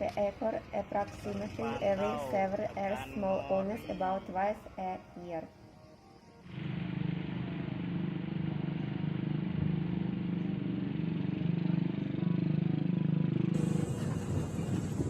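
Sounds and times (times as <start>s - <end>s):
vehicle engine humming: 0.0s - 15.0s
rough gusty noise: 13.6s - 15.0s.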